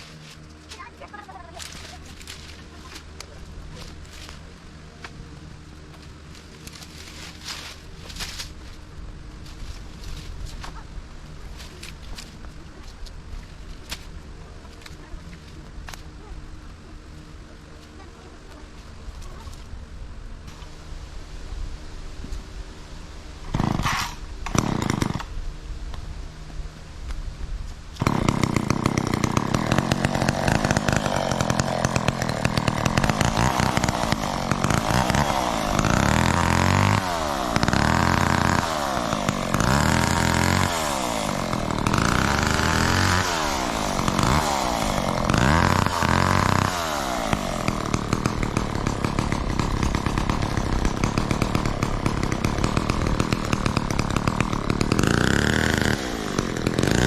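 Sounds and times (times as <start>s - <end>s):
chainsaw engine revving: 23.4s - 25.3s, 28.0s - 57.0s.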